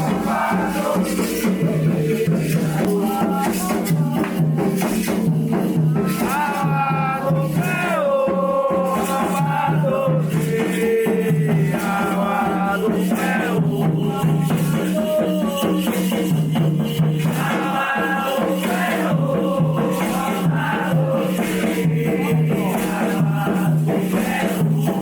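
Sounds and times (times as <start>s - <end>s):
low steady drum beat: 0.0s - 25.0s
shaken rattle: 0.0s - 25.0s
voices singing: 0.0s - 25.0s.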